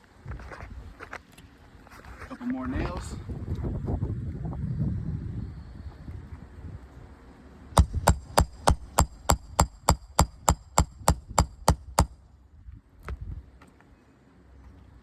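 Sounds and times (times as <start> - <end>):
hammer blows ringing on metal: 7.8 - 12.1.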